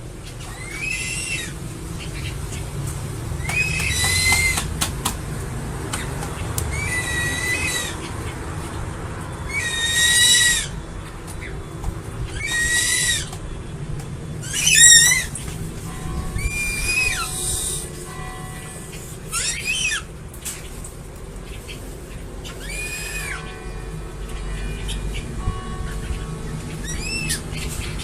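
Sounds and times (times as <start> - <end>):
eagle calling: 3.4 - 4.7, 6.0 - 8.2, 12.2 - 13.4, 14.4 - 20.1, 22.4 - 27.6.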